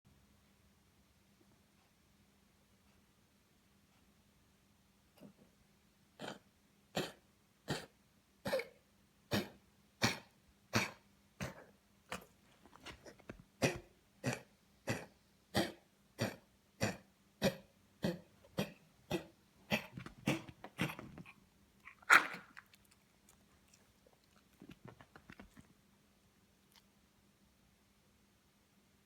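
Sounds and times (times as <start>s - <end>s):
dog coughing: 6.2s - 22.6s.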